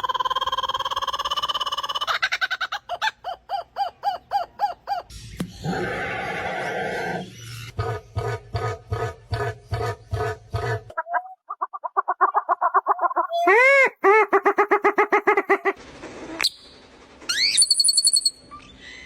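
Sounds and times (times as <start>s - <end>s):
bird calls chattering: 0.5s - 10.2s
rising whistles: 16.4s - 18.9s.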